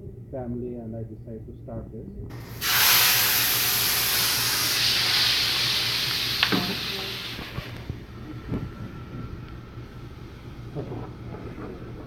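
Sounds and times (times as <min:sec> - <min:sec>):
food sizzling in hot oil: 0:02.3 - 0:07.7
utensil knocking: 0:02.3 - 0:07.8.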